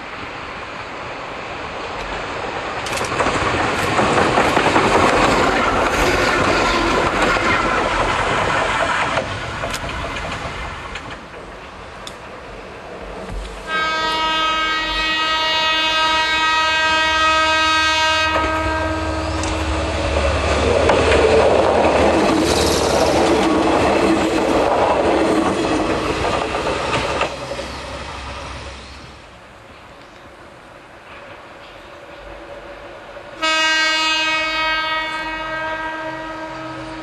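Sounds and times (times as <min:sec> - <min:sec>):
train wheels rumbling and clattering: 0:00.0 - 0:33.4
train horn blast: 0:13.6 - 0:20.2, 0:33.4 - 0:37.0.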